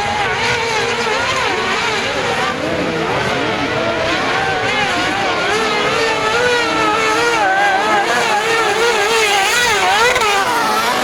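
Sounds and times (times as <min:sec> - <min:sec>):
buggy engines revving: 0:00.0 - 0:11.0.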